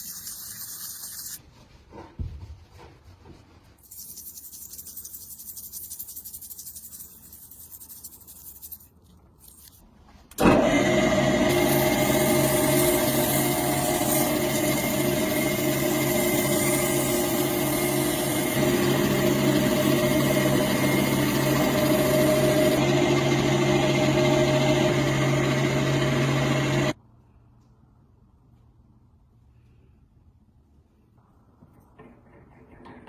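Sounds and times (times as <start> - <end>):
power tool motor running: 10.4 - 27.0.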